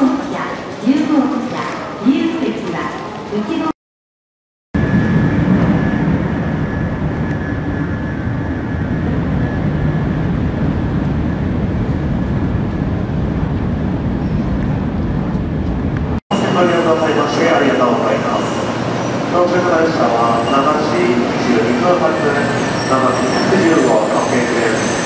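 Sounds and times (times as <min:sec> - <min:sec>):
faint high whine: 0:04.8 - 0:12.7, 0:16.3 - 0:25.0
train interior rumble and hiss: 0:05.5 - 0:25.0.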